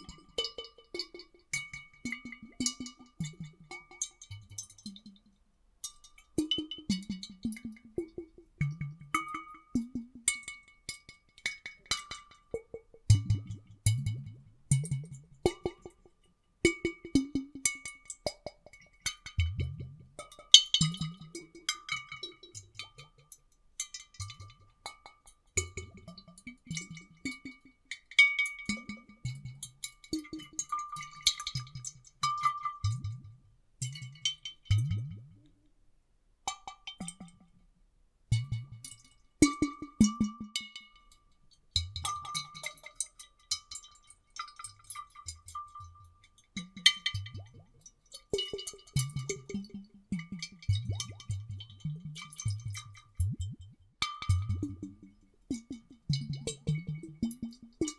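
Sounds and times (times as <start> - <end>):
water sloshing in glass bottles: 41.9 - 57.9.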